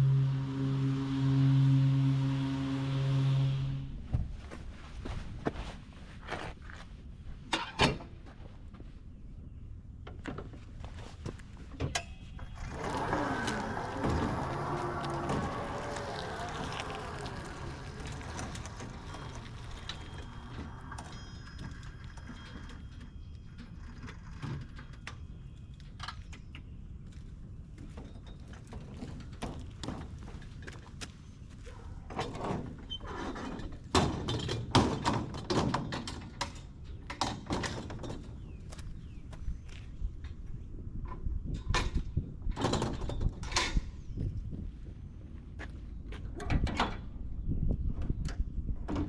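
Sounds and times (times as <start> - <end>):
mower running: 0.0 - 4.0, 12.6 - 21.8.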